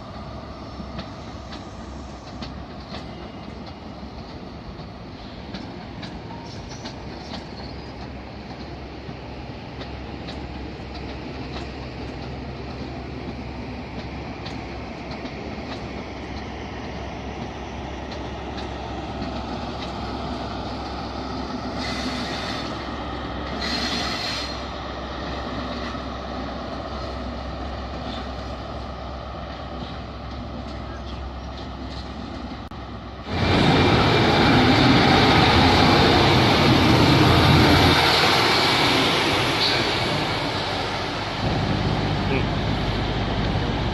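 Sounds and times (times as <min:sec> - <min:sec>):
diesel train engine hum: 0:00.0 - 0:43.9
wheels clicking over rail joints: 0:00.9 - 0:21.1.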